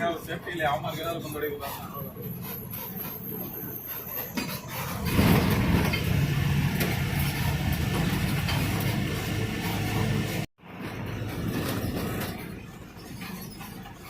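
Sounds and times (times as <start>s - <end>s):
road and cabin noise: 0.0s - 14.0s
bus diesel engine running: 4.7s - 12.9s.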